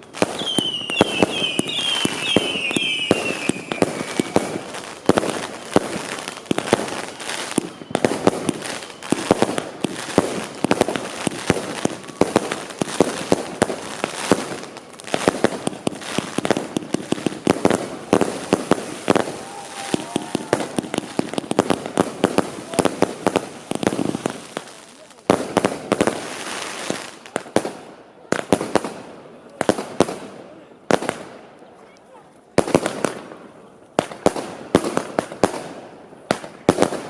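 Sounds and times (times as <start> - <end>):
fireworks falling whistles: 0.0 - 14.6, 15.2 - 24.8
fireworks bangs and crackling: 0.0 - 31.6, 32.5 - 37.0.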